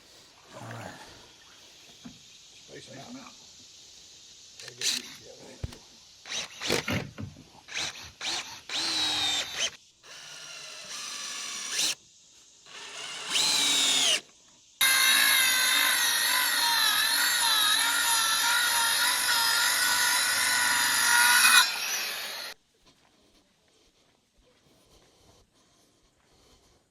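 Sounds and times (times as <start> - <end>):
power drill driving screws: 4.6 - 12.0, 12.7 - 14.2, 14.8 - 22.6.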